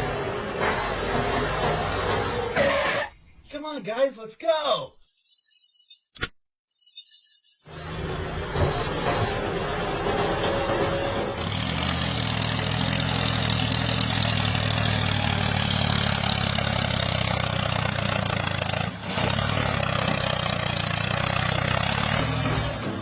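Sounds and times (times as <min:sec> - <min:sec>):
truck engine droning: 0:00.0 - 0:03.3, 0:07.7 - 0:23.0.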